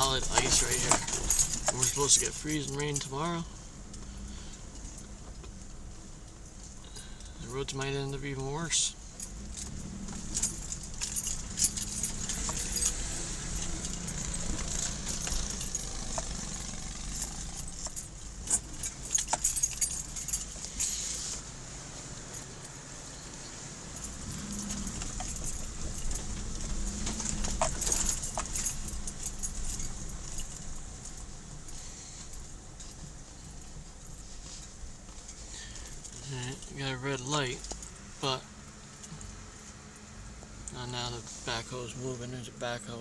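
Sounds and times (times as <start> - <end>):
keys jangling: 0.0 - 3.4, 9.2 - 21.4, 22.2 - 39.7
car engine and tyres rumbling: 0.0 - 43.0.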